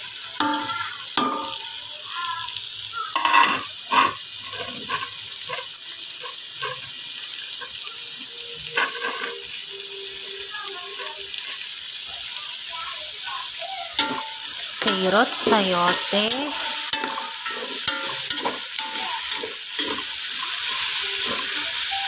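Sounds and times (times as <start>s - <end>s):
vegetables sizzling in oil: 0.0s - 22.0s
clattering scrapes in pot: 3.2s - 6.9s, 8.8s - 9.4s.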